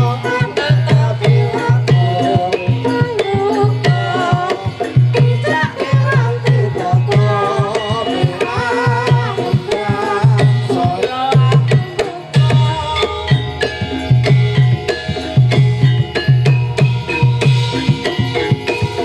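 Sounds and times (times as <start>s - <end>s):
hand drums beating: 0.0s - 19.0s
bending melody line: 5.2s - 19.0s.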